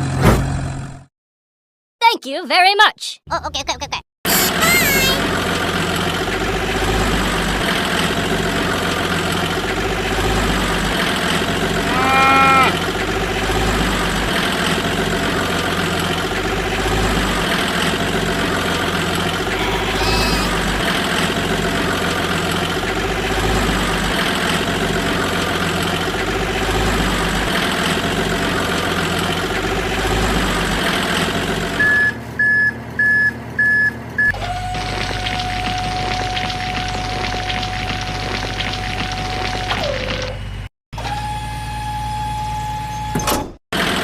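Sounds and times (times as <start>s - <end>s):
truck engine running: 4.3s - 43.0s, 43.8s - 44.0s
reversing beeps: 31.8s - 34.4s.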